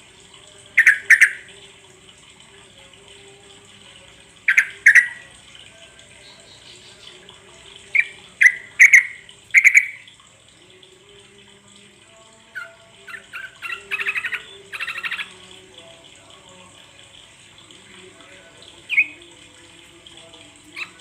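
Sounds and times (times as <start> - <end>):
bulbul calling: 0.8 - 1.5, 4.5 - 5.3, 7.9 - 10.1, 12.6 - 15.4, 18.8 - 19.2
bird chattering phrases: 4.5 - 5.2, 8.0 - 10.0, 12.6 - 15.4.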